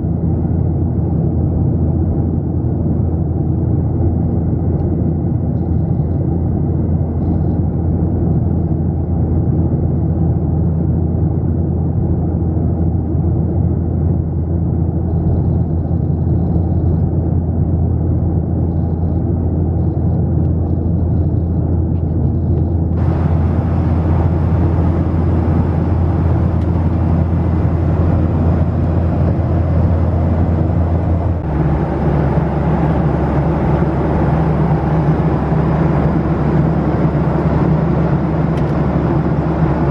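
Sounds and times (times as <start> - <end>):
airplane cabin engine drone: 0.0 - 39.9
rushing air: 22.9 - 39.9.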